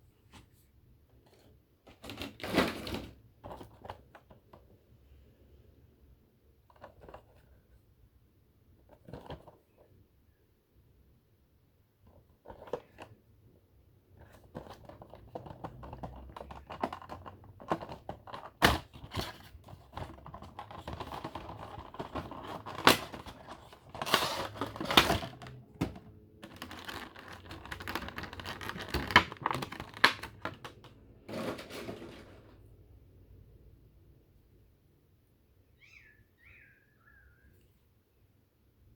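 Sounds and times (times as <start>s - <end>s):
cardboard and plastic crinkling: 14.4s - 32.6s.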